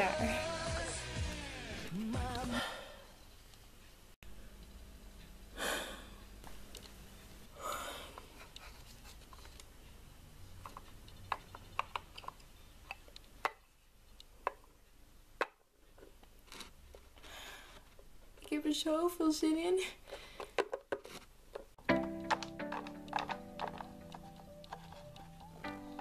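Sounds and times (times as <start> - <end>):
plastic toys clicking: 10.6 - 13.6, 20.4 - 26.0.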